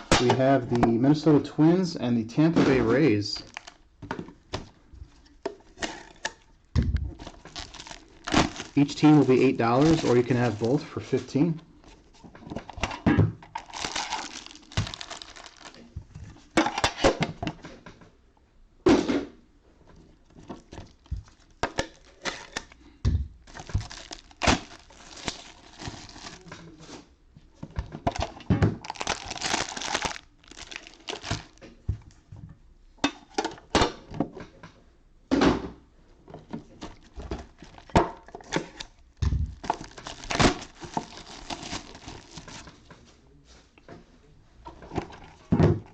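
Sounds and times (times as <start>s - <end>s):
packs knocking: 2.4s - 4.8s, 5.5s - 11.5s, 12.4s - 16.0s, 20.4s - 26.4s, 27.9s - 31.7s, 36.8s - 42.7s
wrappers crinkling: 2.7s - 3.8s, 7.1s - 12.8s, 13.5s - 16.0s, 20.5s - 22.8s, 23.4s - 26.6s, 28.2s - 31.8s, 37.0s - 38.0s, 38.6s - 42.8s.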